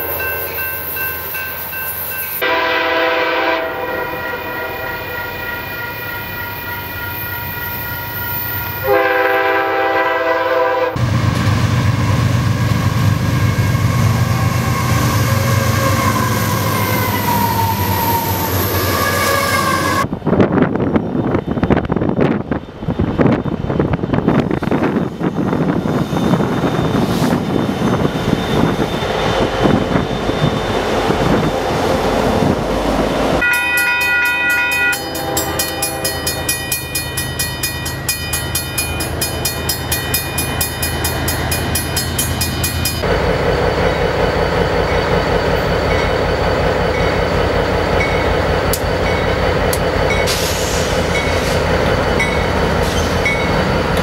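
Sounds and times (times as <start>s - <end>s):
diesel locomotives running: 0.0s - 54.0s
steel wheels on rail: 0.0s - 54.0s
locomotive air horn: 2.4s - 7.8s, 8.8s - 11.0s, 18.7s - 20.1s, 33.4s - 36.5s
wind on microphone: 19.8s - 33.4s.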